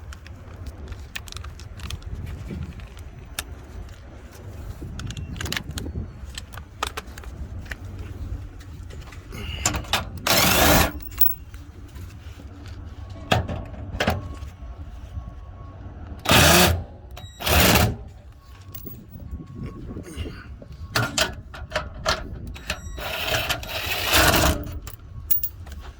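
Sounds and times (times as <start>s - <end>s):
wind rumbling on microphone: 0.0s - 12.3s, 17.8s - 25.9s
metal clinks of hand tools: 10.9s - 11.4s, 18.7s - 19.2s, 24.4s - 25.6s.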